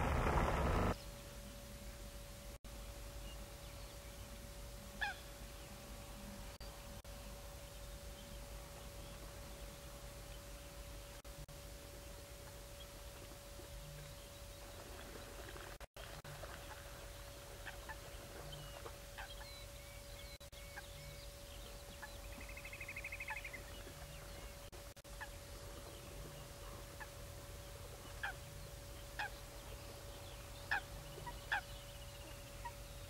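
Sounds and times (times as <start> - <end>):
faint steady hum: 0.0 - 33.0
bird calls: 5.0 - 5.4, 13.8 - 33.0
bird trill: 30.6 - 33.0.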